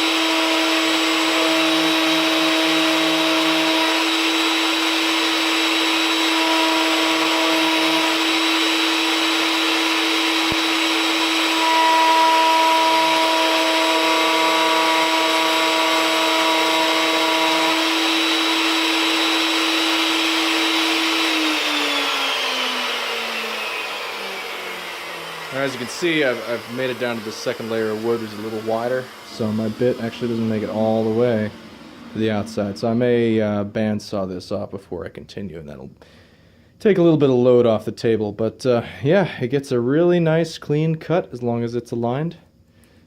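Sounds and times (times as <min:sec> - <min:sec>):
router motor whine: 0:00.0 - 0:33.7
router cutting wood: 0:00.0 - 0:34.0.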